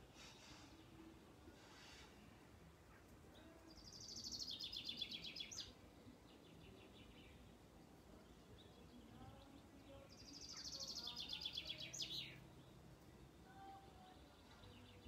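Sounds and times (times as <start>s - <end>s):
faint bird chirps: 2.8s - 7.5s, 8.2s - 15.0s.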